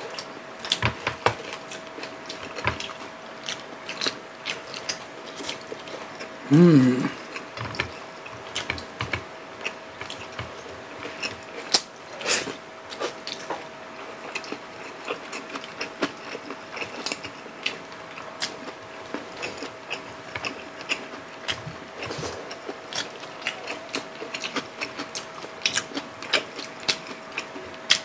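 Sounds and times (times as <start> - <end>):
faint steady hum: 0.0 - 28.0
wet chewing: 14.2 - 28.0.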